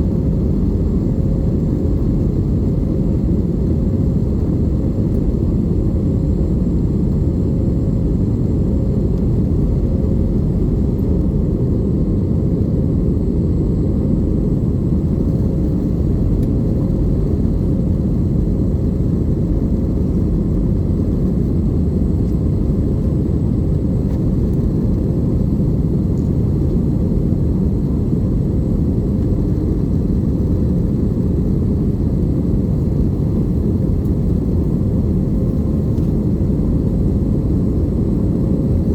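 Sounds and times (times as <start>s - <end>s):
airplane engine and airflow rumble: 0.0s - 38.9s.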